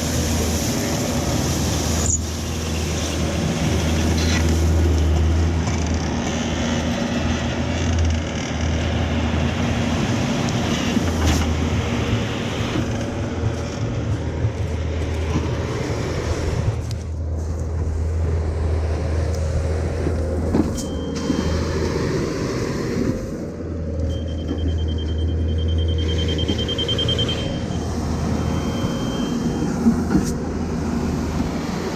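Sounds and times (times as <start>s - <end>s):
heavy diesel engine running: 0.0s - 31.9s
short high beep: 24.1s - 29.6s.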